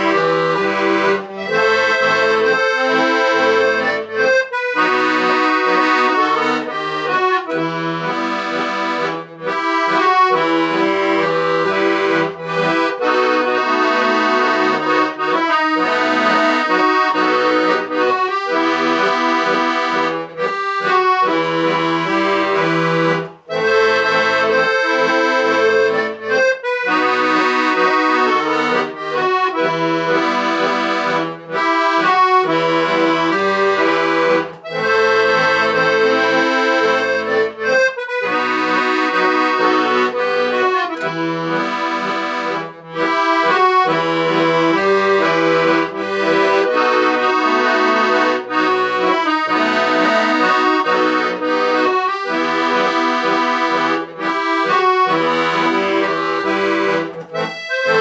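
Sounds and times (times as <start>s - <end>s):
accordion melody: 0.0s - 58.0s.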